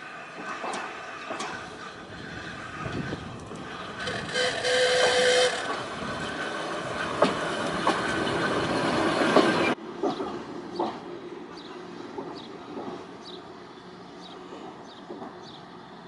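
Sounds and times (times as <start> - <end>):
railway car running on track: 0.0 - 16.0
wheels clacking over rail joints: 0.0 - 16.0.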